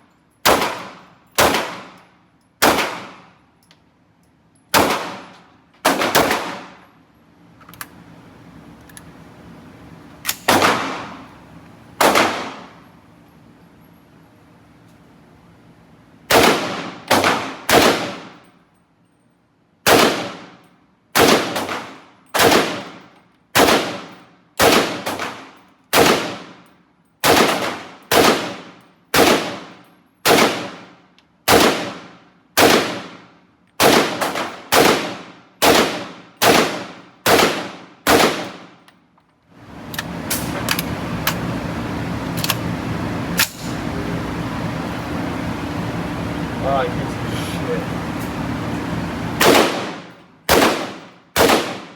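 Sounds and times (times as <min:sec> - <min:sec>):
gunshots with ringing tail: 0:16.3 - 0:18.4, 0:21.2 - 0:23.0, 0:23.6 - 0:26.5, 0:27.2 - 0:30.9, 0:33.8 - 0:38.7, 0:49.4 - 0:51.9.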